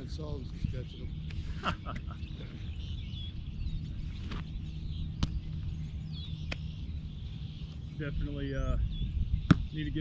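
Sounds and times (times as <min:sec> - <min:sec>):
birds chirping: 0:00.0 - 0:10.0
steady low rumble: 0:00.0 - 0:10.0
sharp smacks: 0:05.2 - 0:05.4, 0:06.5 - 0:06.7.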